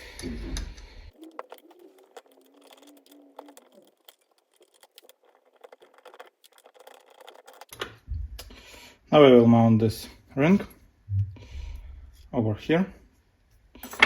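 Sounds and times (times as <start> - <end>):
small metal parts clicking: 1.1 - 7.9.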